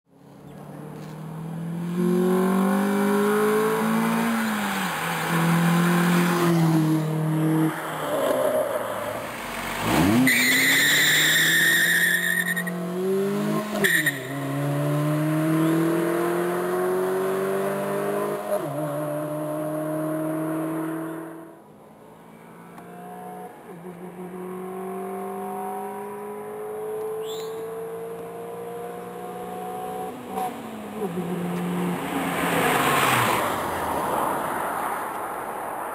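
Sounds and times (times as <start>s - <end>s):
car engine at full throttle: 0.4s - 21.5s, 22.6s - 33.4s
tires squealing: 2.8s - 14.7s.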